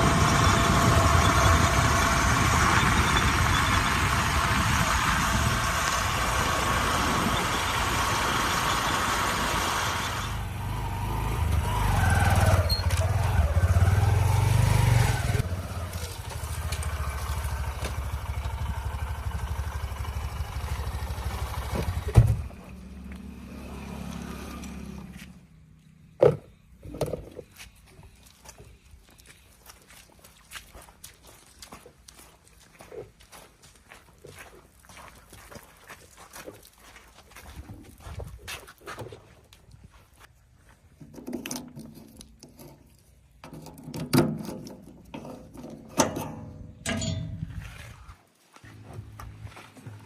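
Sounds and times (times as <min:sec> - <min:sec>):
tractor engine running: 0:00.0 - 0:25.9.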